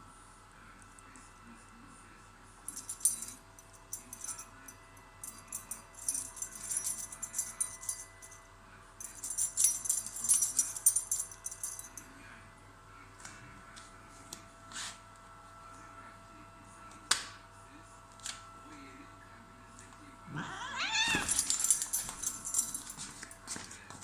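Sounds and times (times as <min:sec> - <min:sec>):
metallic jingling: 0:02.7 - 0:04.4, 0:05.2 - 0:08.3, 0:09.0 - 0:12.0, 0:20.7 - 0:23.4.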